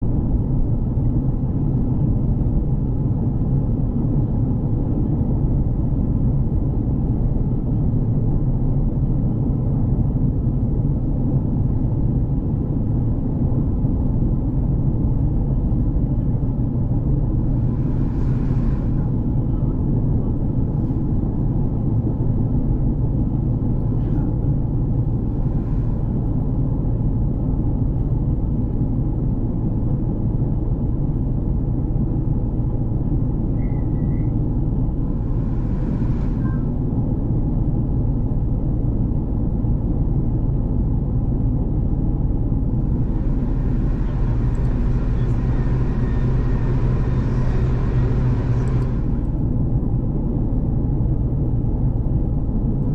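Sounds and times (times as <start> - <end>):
diesel train engine and rail rumble: 0.0 - 52.9
loud hiss: 42.8 - 49.4.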